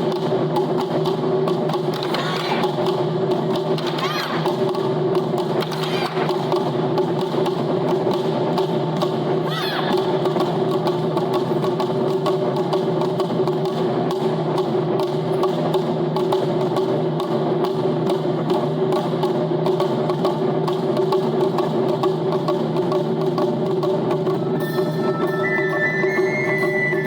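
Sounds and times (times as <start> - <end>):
taiko drums fast strikes: 0.0 - 24.9
sustained tones: 24.3 - 27.0.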